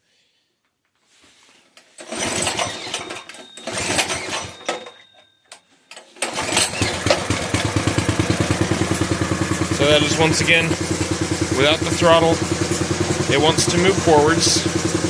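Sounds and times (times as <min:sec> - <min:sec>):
small engine cranking: 0:02.0 - 0:04.9, 0:06.2 - 0:15.0
small engine running: 0:02.1 - 0:04.6, 0:06.2 - 0:15.0.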